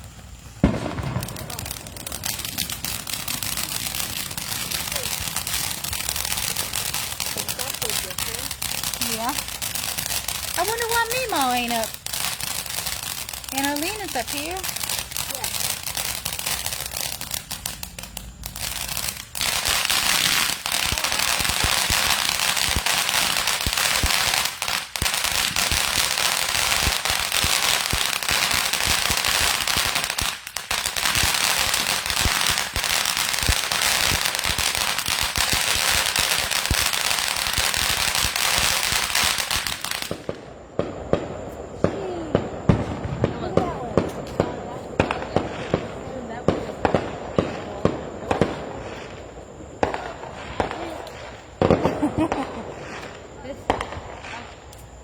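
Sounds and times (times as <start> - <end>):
fireworks hissing and crackling: 0.0 - 55.0.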